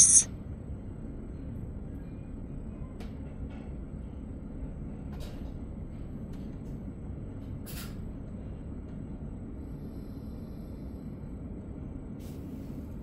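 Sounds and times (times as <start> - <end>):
brief hiss: 0.0 - 0.3.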